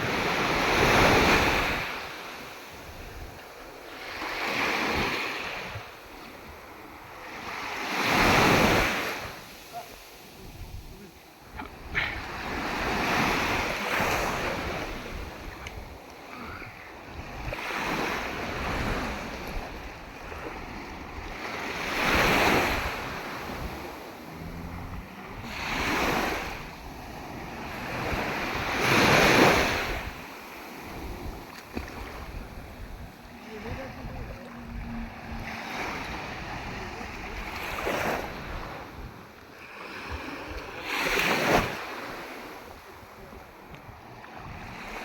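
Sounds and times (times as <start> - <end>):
sea waves breaking ashore: 0.0 - 45.0
wind rumbling on microphone: 2.7 - 3.7, 10.4 - 16.1, 17.0 - 39.5.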